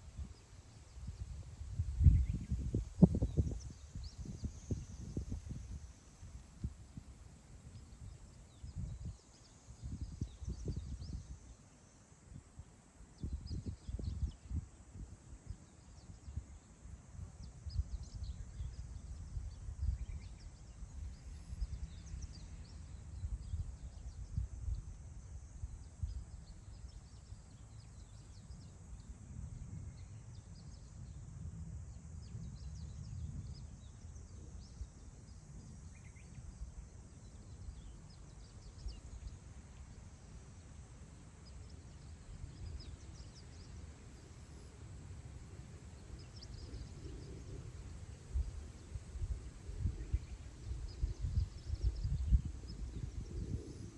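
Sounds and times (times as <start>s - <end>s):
wind buffeting microphone: 0.1s - 7.2s, 9.8s - 11.4s, 45.5s - 53.9s.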